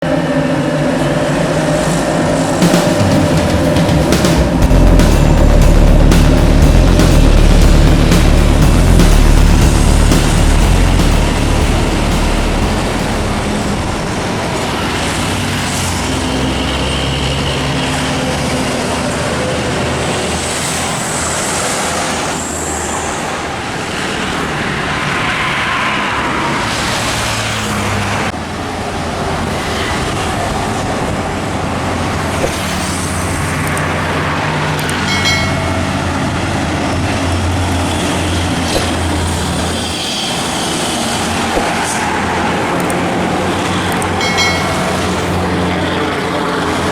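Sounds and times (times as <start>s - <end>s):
trucks and traffic passing: 0.0s - 46.9s
short pitched tone: 35.1s - 36.2s, 44.2s - 45.6s.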